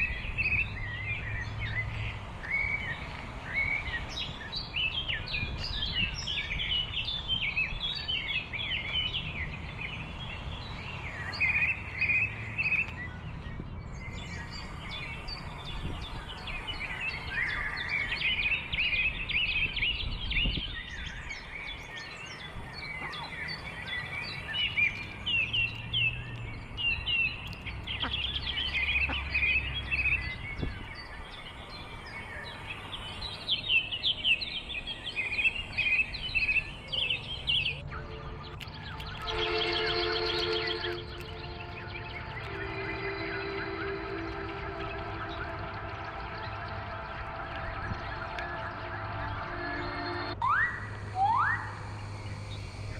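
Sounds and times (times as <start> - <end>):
small birds chirping: 0.0 - 52.9
low rumble: 39.2 - 52.9.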